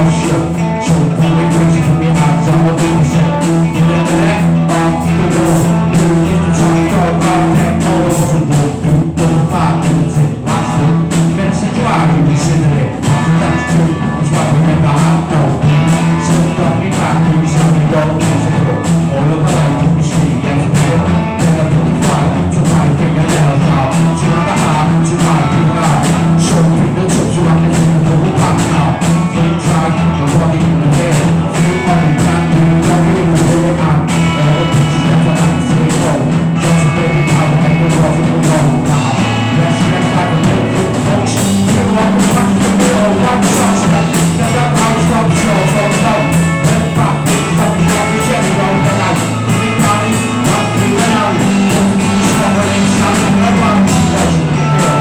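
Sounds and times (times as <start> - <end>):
drum kit steady beat: 0.0 - 55.0
higher pitched instrument lines: 34.0 - 55.0.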